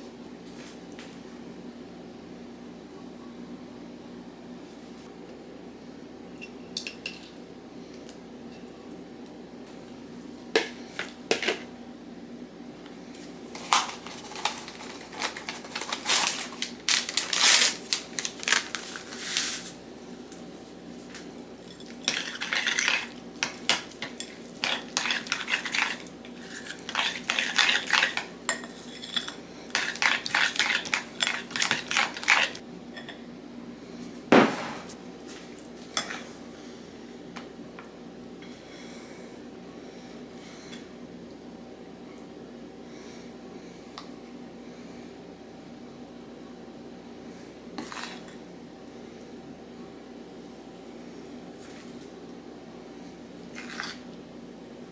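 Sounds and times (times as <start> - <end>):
faint steady hum: 0.0 - 54.9
utensils and dishes clattering: 13.6 - 18.9, 21.6 - 33.1.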